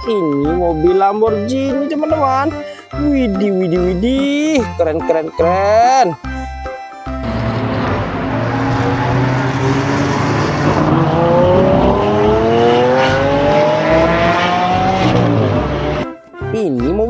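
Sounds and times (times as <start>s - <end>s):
race car engine accelerating: 7.2s - 16.0s.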